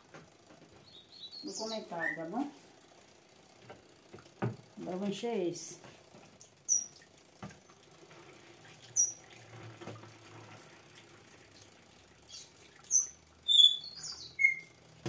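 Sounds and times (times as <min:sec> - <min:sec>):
small birds chirping: 0:00.7 - 0:02.5, 0:06.4 - 0:07.8, 0:08.7 - 0:09.3, 0:11.5 - 0:14.8.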